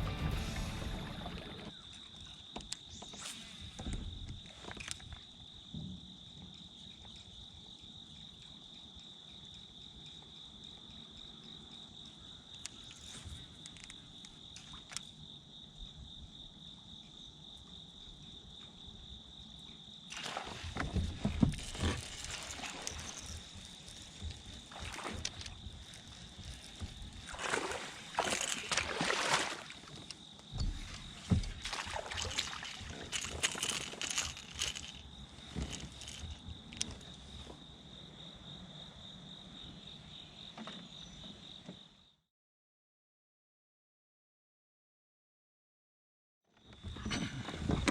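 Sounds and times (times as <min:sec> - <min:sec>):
water sloshing and splashing: 0:20.1 - 0:37.4
high-pitched insect drone: 0:21.4 - 0:37.1.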